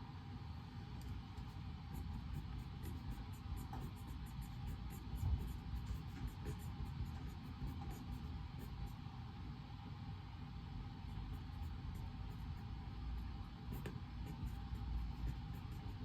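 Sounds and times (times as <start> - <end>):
ventilation hum: 0.0 - 16.0
pen scratching on paper: 1.4 - 9.0, 11.0 - 16.0.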